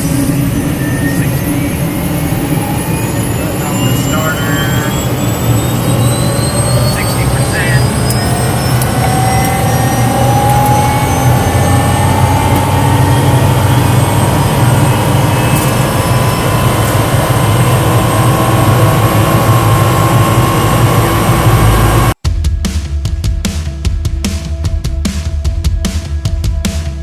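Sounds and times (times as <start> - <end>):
helicopter turbine engine whine: 0.0 - 22.2
electronic music with hard beat: 22.2 - 27.0.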